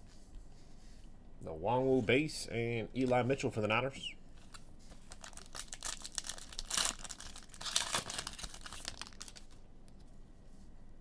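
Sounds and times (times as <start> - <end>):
foil wrapper crinkling: 4.4 - 9.6.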